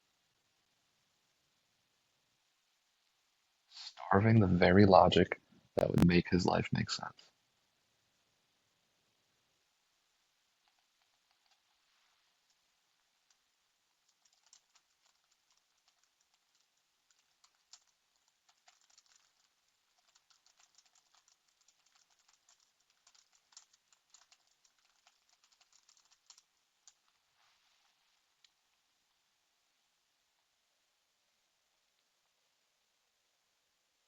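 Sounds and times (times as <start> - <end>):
typing on computer keyboard: 10.6 - 11.7, 14.0 - 27.2.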